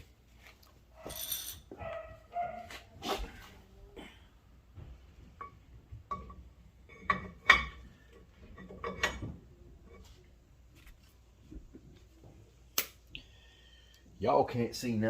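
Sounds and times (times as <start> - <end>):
metallic clinks and clanks: 1.0 - 1.8.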